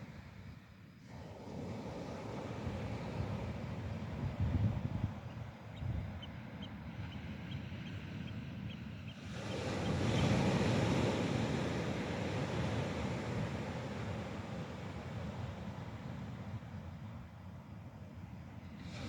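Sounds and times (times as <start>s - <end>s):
wind buffeting the microphone: 1.1s - 8.0s.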